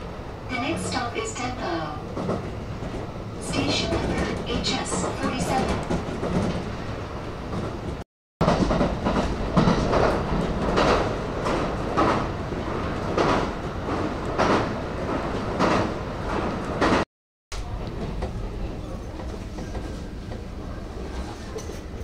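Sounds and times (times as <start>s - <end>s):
train rumble: 0.0s - 22.0s
train wheels clacking: 7.5s - 12.4s, 13.0s - 17.0s.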